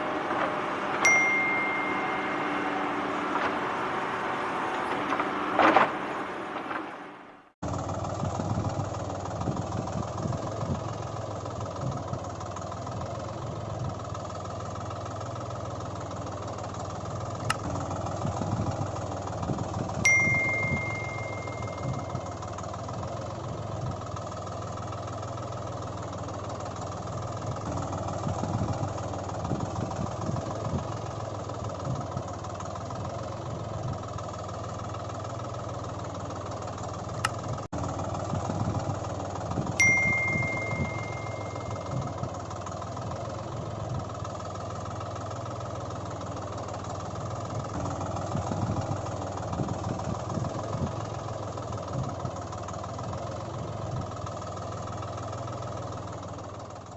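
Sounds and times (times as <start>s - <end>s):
engine-like running hum: 0.0s - 56.9s
clear ringing tone: 0.8s - 3.8s, 20.1s - 22.6s, 39.8s - 42.3s
click: 17.4s - 17.6s.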